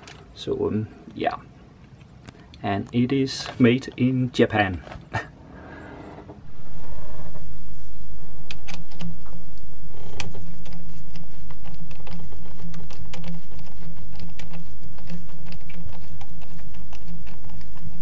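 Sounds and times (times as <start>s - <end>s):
steady low rumble: 6.4s - 18.0s.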